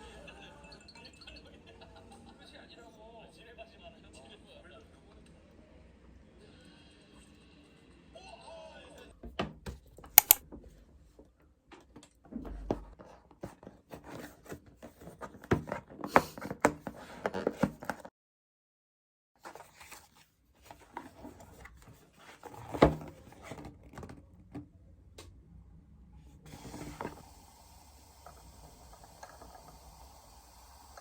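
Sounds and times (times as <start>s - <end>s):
sharp clicks taps and knocks: 10.2s - 10.4s.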